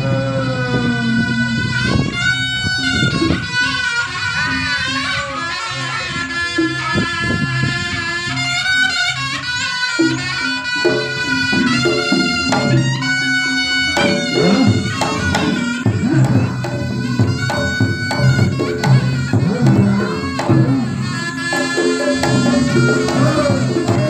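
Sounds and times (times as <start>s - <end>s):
reedy wind instrument melody: 0.0s - 24.0s
drums: 6.2s - 24.0s.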